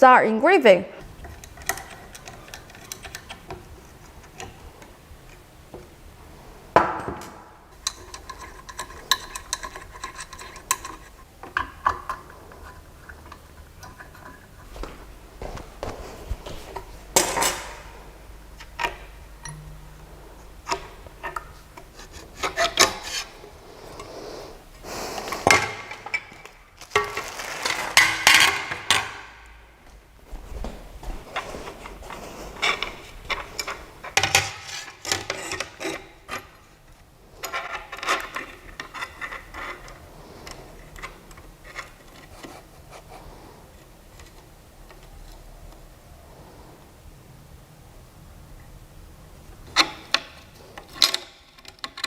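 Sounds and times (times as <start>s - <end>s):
rubbing and scraping: 20.1s - 29.0s, 30.3s - 36.8s.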